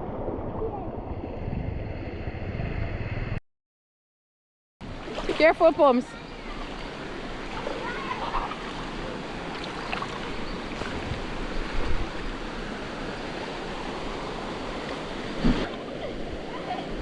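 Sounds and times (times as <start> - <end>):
river water rushing over stones: 4.9 - 16.8.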